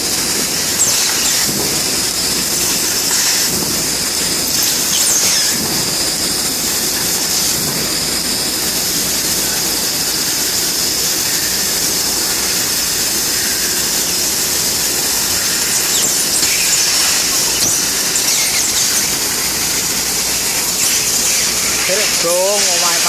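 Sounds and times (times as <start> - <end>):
laser cutting machine hissing: 0.0 - 23.0
faint short squeaks: 15.3 - 19.9.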